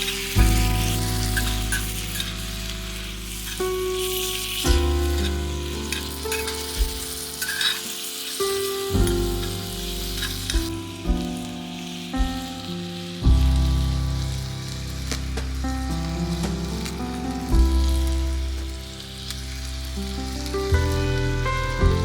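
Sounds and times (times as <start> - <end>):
background music of sustained chords: 0.0 - 22.0
food sizzling in a pan: 0.0 - 22.0.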